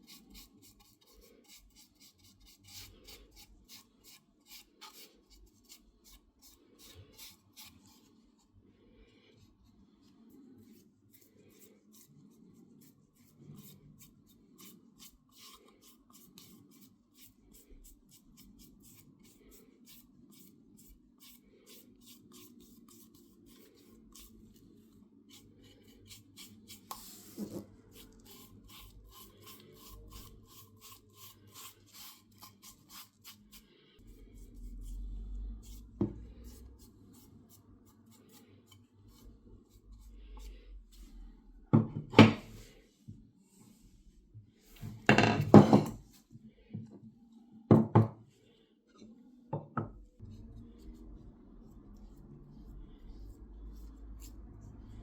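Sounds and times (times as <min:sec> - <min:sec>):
light rubbing strokes by hand: 0:09.6 - 0:41.4, 0:50.2 - 0:55.0.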